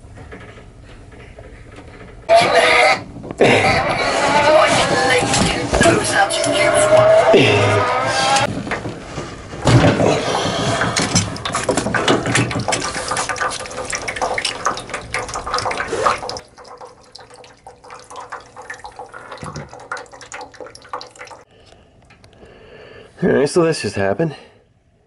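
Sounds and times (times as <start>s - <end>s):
water rushing from pipe: 10.0s - 21.5s.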